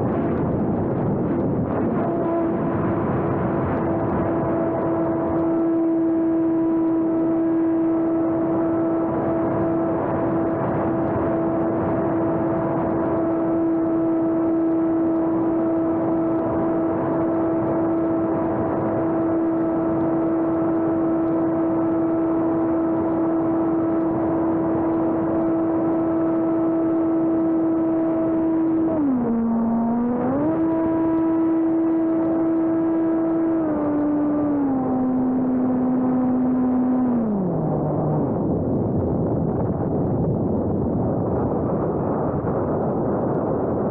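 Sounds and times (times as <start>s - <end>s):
model airplane motor whine: 12.9s - 38.2s.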